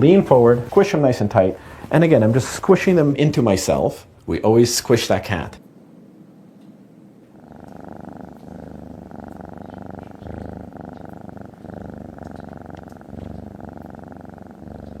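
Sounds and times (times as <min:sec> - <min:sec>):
cat purring: 0:00.0 - 0:04.1, 0:07.2 - 0:15.0.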